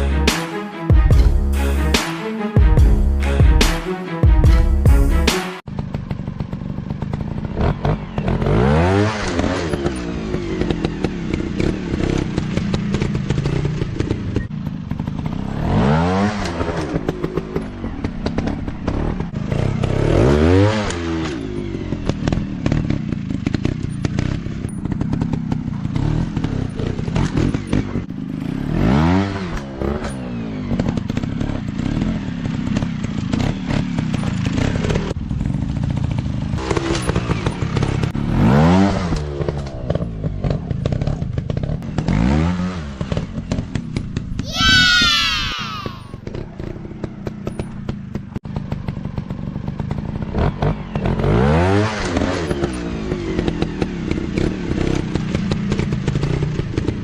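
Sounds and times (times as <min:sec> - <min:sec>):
dirt bike engines revving: 0:05.8 - 0:39.7, 0:44.4 - 0:47.7.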